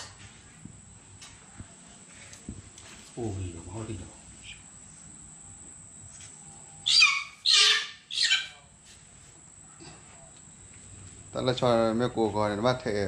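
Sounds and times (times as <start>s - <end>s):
loud bird calls: 6.8s - 8.7s.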